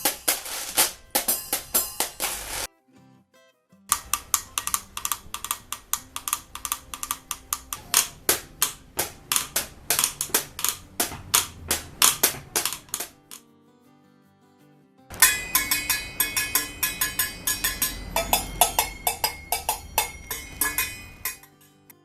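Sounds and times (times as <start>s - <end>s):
washboard sharp taps and clicks: 3.9s - 13.4s, 15.1s - 21.5s.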